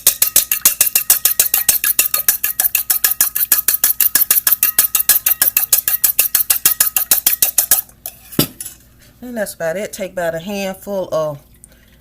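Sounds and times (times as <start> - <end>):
egg beaten in a bowl: 0.0 - 7.9.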